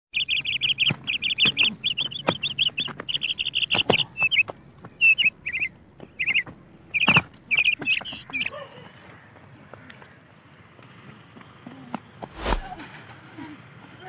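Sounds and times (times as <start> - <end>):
small birds chirping: 0.1 - 12.6.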